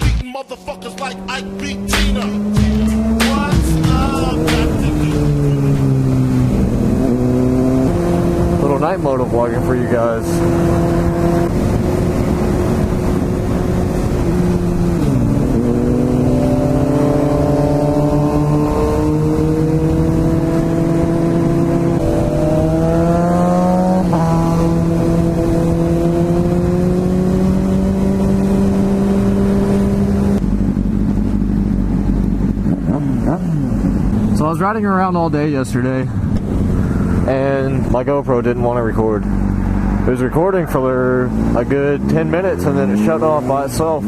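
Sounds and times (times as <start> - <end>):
motorcycle engine accelerating: 0.0 - 44.0
wind rushing: 9.9 - 31.1, 35.8 - 37.9, 39.0 - 42.1.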